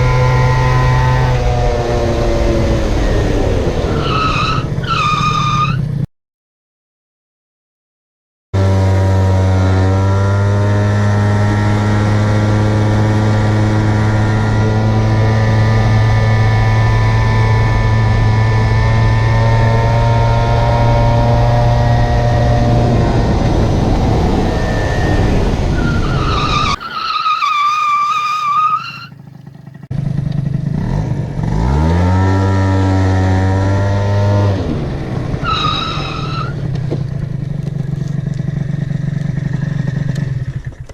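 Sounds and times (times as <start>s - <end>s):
scooter engine high drone: 0.0s - 4.9s, 8.6s - 40.9s.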